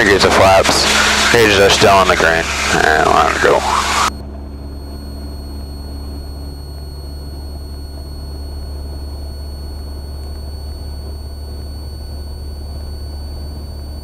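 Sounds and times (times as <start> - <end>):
propeller plane engine drone: 0.0 - 14.0.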